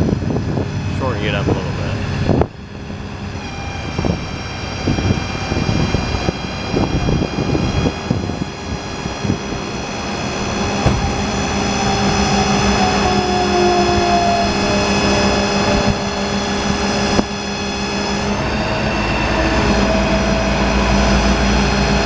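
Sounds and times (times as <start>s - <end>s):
diesel engine rumble: 0.0s - 22.0s
hydraulic whine: 0.0s - 22.0s
rising tone: 0.1s - 22.0s
clunks and knocks: 10.7s - 12.6s.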